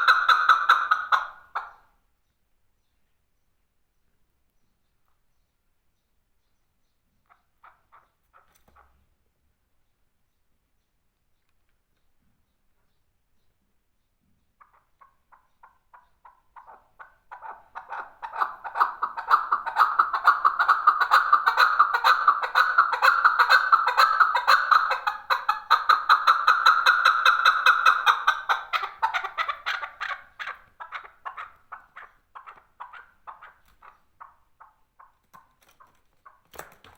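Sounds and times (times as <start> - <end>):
partridge rapid clucking calls: 0.0 - 1.9, 7.2 - 9.0, 14.4 - 36.8.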